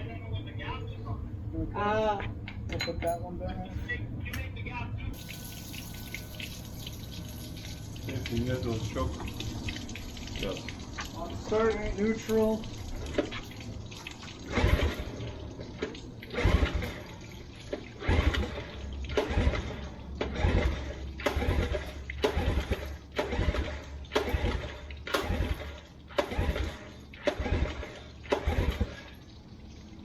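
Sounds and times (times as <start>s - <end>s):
outboard engine cranking: 12.2s - 29.3s
recoil cord pulls: 18.0s - 29.0s.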